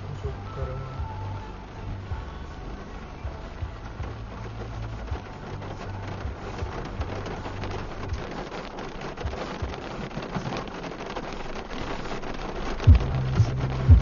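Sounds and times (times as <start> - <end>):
rain falling on a car: 0.0 - 14.0
low knocks: 12.9 - 14.0.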